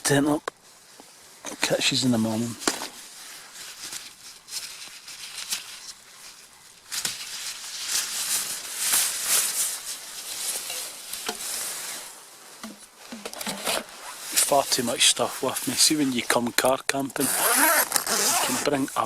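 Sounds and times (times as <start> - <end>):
fabric and gear rustling: 2.4 - 16.4, 17.2 - 18.8.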